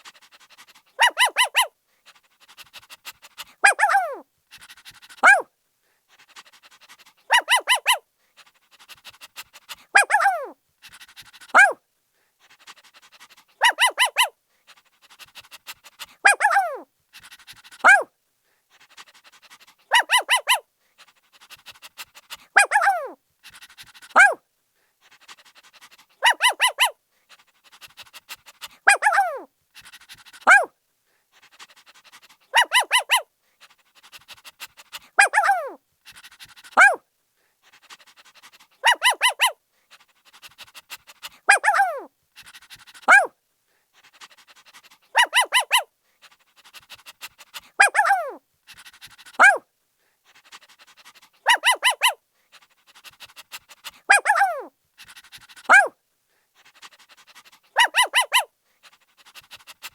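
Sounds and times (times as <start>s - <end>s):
puppy barking and yelping: 0.2s - 5.5s, 6.7s - 8.0s, 9.7s - 11.8s, 12.8s - 14.4s, 15.1s - 18.1s, 19.0s - 20.7s, 21.4s - 24.4s, 25.0s - 30.7s, 31.7s - 33.3s, 34.0s - 37.0s, 37.9s - 39.6s, 40.5s - 43.3s, 44.8s - 45.9s, 46.7s - 49.6s, 50.9s - 52.2s, 53.0s - 56.0s, 56.8s - 58.5s.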